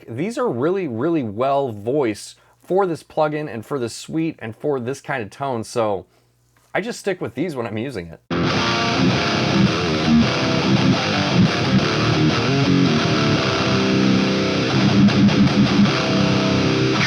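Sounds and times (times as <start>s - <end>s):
distorted electric guitar riff: 8.3s - 17.0s.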